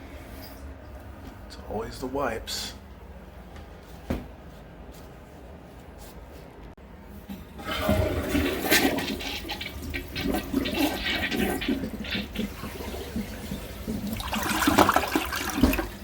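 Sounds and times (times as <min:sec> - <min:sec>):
toilet flushing with gurgling: 0:07.1 - 0:16.0.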